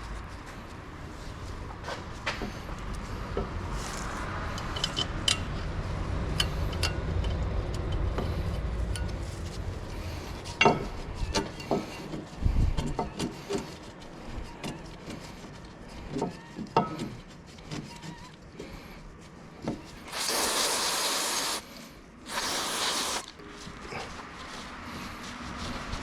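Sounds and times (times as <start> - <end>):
low rumble: 0.0 - 11.4
metal tools clinking and knocking: 4.6 - 5.5.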